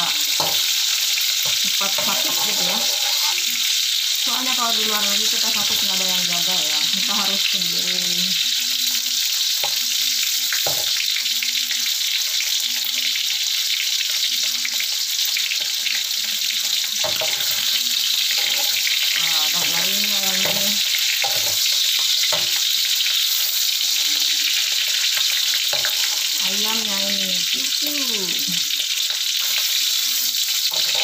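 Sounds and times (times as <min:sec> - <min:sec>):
food sizzling in hot oil: 0:00.0 - 0:31.0
metal spatula scraping a pan: 0:00.2 - 0:04.2, 0:17.0 - 0:26.9, 0:28.9 - 0:31.0.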